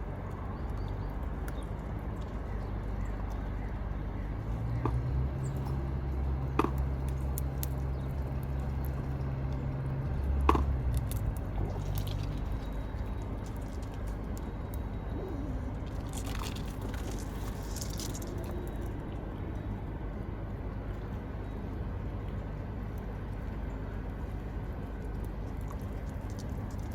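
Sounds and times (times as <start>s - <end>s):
low engine hum: 0.0s - 26.9s
rustling: 15.8s - 18.7s.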